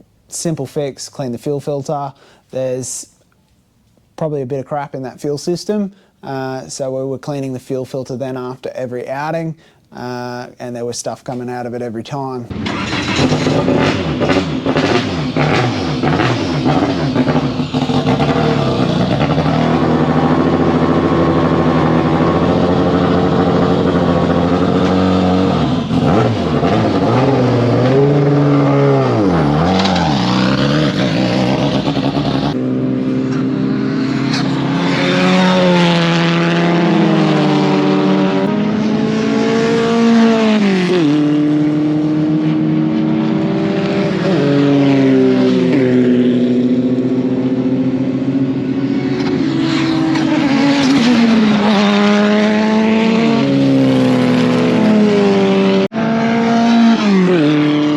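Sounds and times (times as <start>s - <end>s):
racing car engine revving: 12.5s - 57.9s.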